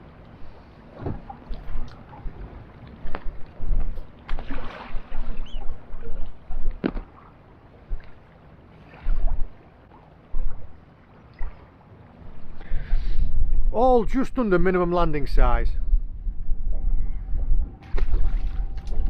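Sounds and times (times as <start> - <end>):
wind gusting over microphone: 0.8 - 7.2, 8.9 - 9.7, 12.2 - 19.0.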